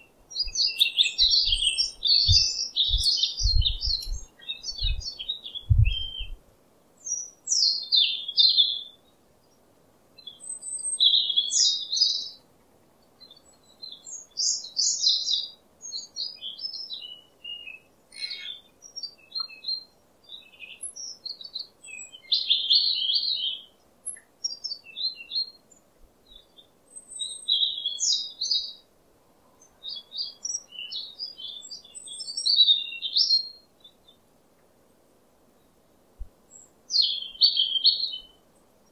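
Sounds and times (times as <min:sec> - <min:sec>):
small bird singing: 0:00.0 - 0:06.4, 0:07.0 - 0:28.9, 0:29.5 - 0:34.3, 0:35.5 - 0:38.9
low thumps: 0:02.2 - 0:04.2.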